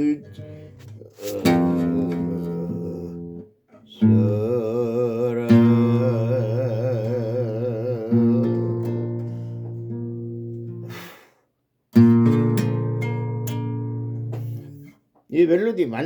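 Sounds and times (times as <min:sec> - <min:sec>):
acoustic guitar strumming: 0:00.0 - 0:11.0, 0:12.0 - 0:15.0
man singing held note: 0:00.9 - 0:09.2.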